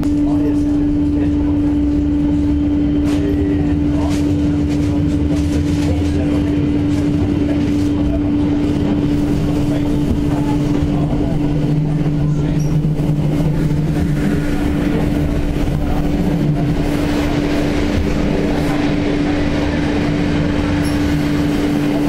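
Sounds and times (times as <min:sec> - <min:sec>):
train hum: 0:00.0 - 0:22.0
wheel and track rumble: 0:00.0 - 0:22.0.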